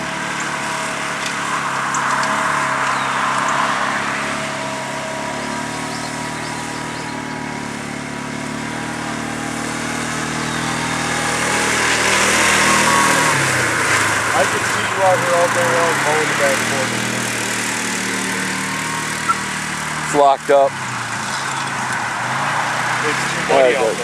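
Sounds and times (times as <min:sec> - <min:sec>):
small engines running under load: 0:00.0 - 0:24.0.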